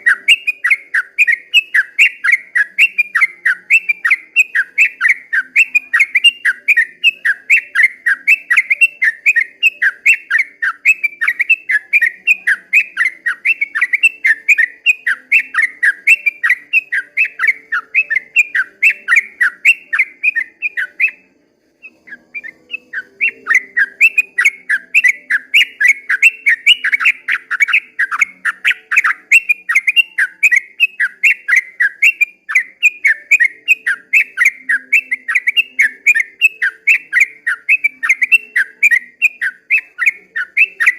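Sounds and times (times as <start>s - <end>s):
bird singing whistled notes: 0.0s - 40.9s.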